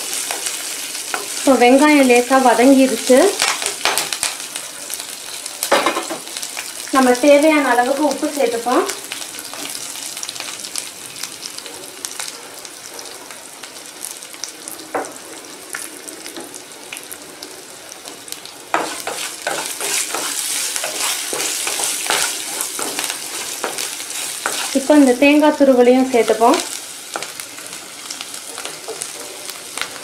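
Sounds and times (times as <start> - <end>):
spices sizzling in pan: 0.0 - 30.0
wooden spatula scraping pan: 18.8 - 24.9.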